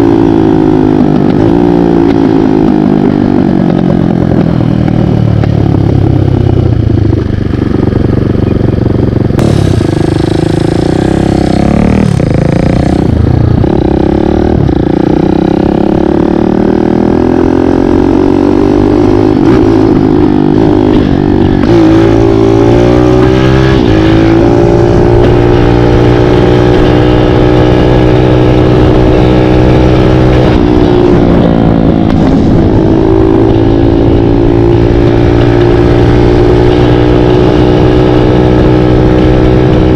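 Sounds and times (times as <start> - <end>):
dirt bike engine revving: 9.4 - 39.9.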